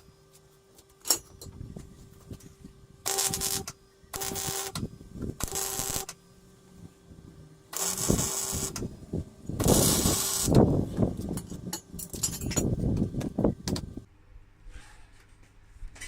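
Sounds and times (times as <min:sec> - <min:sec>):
welding crackle: 0:03.1 - 0:04.8, 0:05.4 - 0:06.2, 0:07.7 - 0:08.9, 0:09.6 - 0:11.4.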